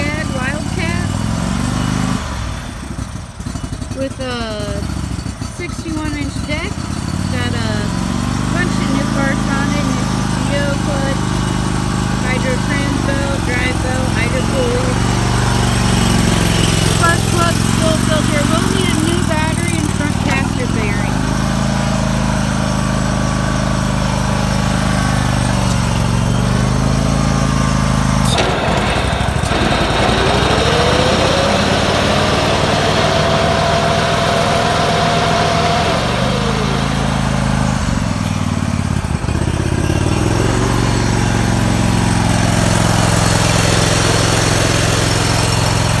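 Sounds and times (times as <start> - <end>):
mower engine running: 0.0 - 46.0
rising whine: 5.1 - 39.4.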